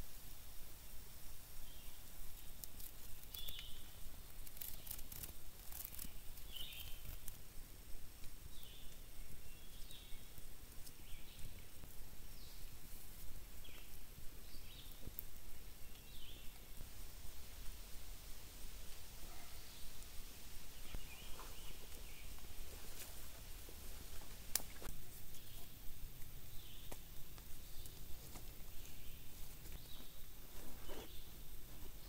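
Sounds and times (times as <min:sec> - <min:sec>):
faint crackles and rustles: 0:00.0 - 0:32.0
bird chirping: 0:01.6 - 0:07.3, 0:08.5 - 0:16.7, 0:20.7 - 0:25.8.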